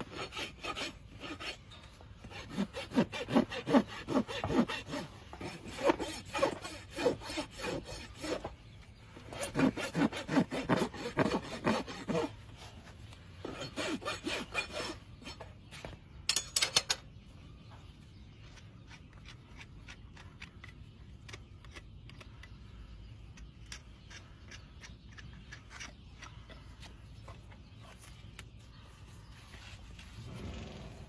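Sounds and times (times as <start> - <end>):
rasp scraping hoof: 0.0 - 8.6, 9.2 - 12.8, 13.4 - 15.5.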